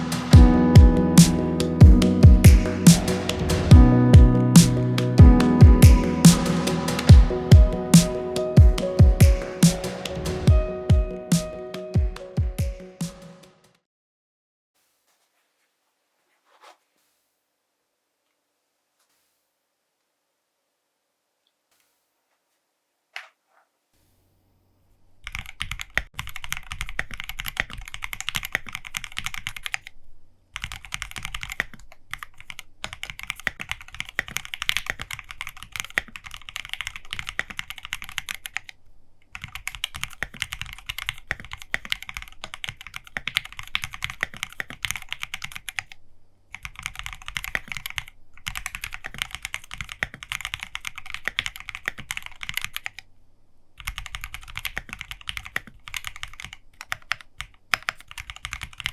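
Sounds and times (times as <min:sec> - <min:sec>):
fast typing on mechanical keyboard: 0:25.2 - 0:30.0, 0:30.6 - 0:53.0, 0:53.8 - 0:58.9.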